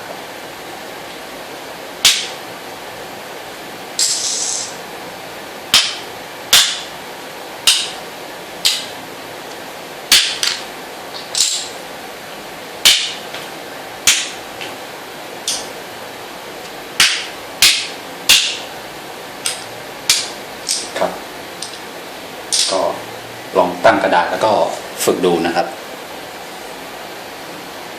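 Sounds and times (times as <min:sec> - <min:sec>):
checkers pieces clacking on board: 0:11.4 - 0:11.7.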